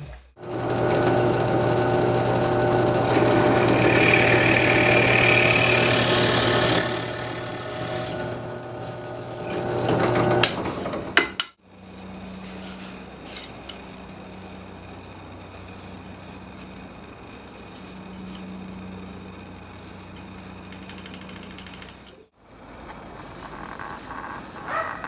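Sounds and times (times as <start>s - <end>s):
power tool cutting wood: 0.4s - 11.2s
power tool motor humming: 0.4s - 11.2s.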